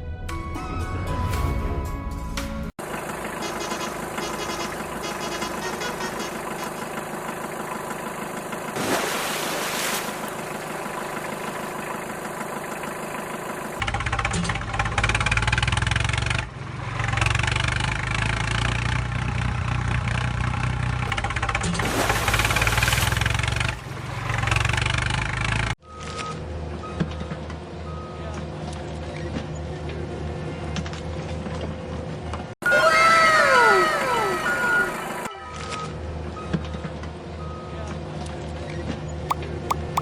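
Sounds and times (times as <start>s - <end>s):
heavy vehicle engine running: 2.8s - 25.8s.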